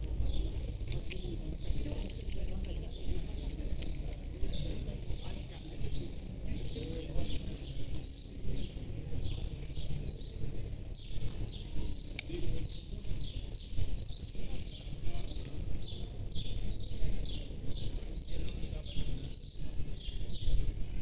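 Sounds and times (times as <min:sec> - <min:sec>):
low outdoor rumble: 0:00.0 - 0:21.0
small birds chirping: 0:00.0 - 0:21.0.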